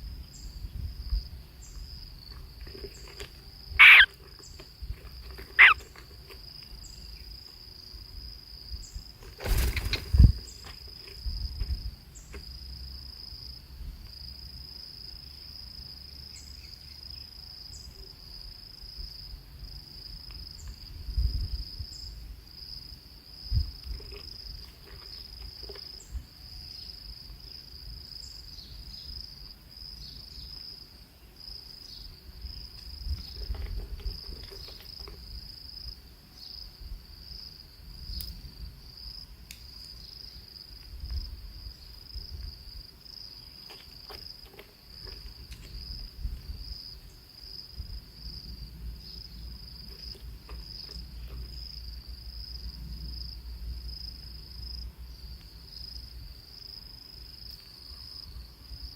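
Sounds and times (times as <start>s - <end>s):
high-pitched insect trill: 0.0s - 58.9s.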